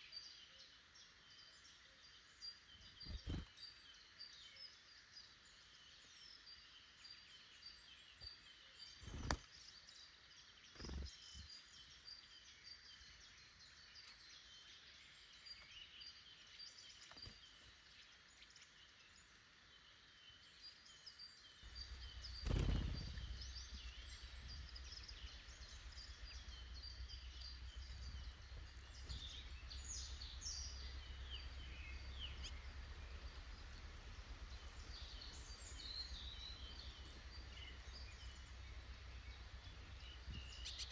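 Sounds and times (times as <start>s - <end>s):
songbirds singing and calling: 0.0s - 40.9s
low steady rumble: 21.6s - 40.9s.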